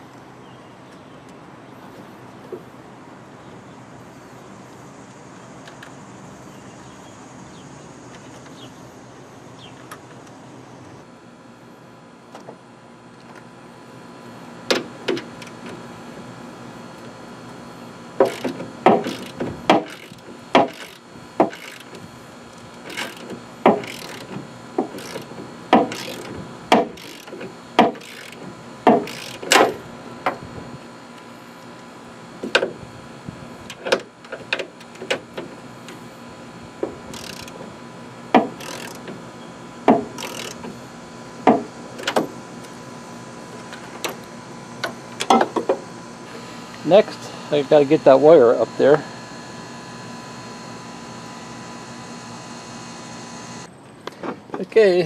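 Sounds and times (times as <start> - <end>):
hand tools clicking and knocking: 18.2 - 22.0, 22.8 - 30.4, 36.8 - 37.6, 38.4 - 39.2.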